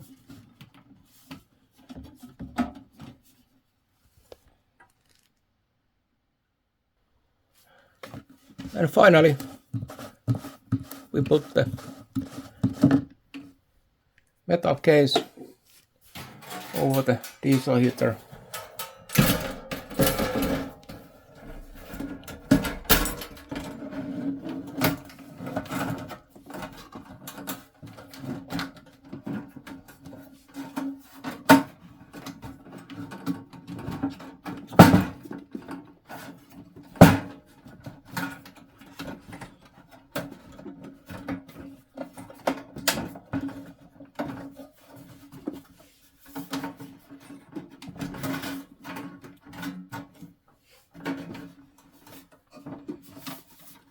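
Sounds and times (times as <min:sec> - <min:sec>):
metal case knocking and clanking: 0:16.2 - 0:24.0.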